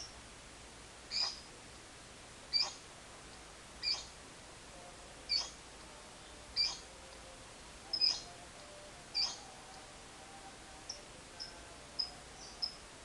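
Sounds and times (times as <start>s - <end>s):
lovebird high-pitched chirps: 1.1s - 1.5s, 2.5s - 2.8s, 3.8s - 4.2s, 5.3s - 5.6s, 6.5s - 6.9s, 7.9s - 8.4s, 9.1s - 9.6s, 10.8s - 12.8s.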